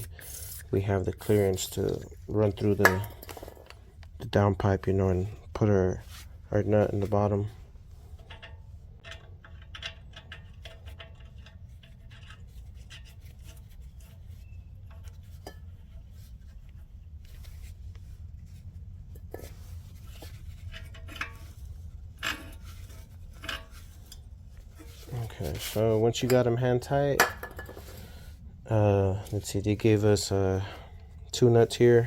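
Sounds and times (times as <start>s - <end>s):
steady low hum: 0.0s - 32.0s
metal clicks and scrapes: 8.1s - 16.7s, 19.1s - 28.2s.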